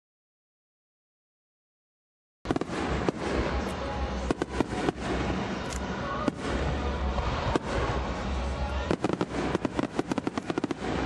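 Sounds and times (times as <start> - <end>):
fireworks bangs and crackles: 2.5 - 11.0
low rumble: 2.5 - 11.0.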